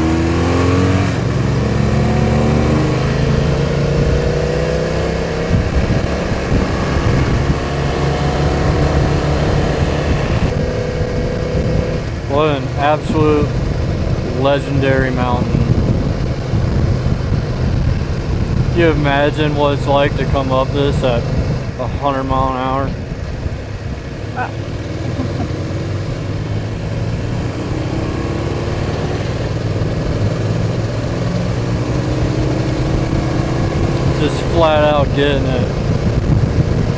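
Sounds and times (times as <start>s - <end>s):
motorcycle engine running: 0.0s - 36.9s
wind rushing over microphone: 0.0s - 36.9s.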